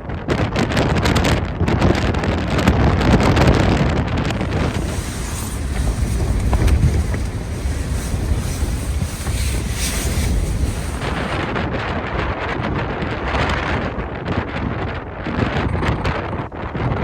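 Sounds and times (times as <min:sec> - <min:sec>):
wind rumble on microphone: 0:00.0 - 0:17.0
wind gusting against tent: 0:04.3 - 0:14.1.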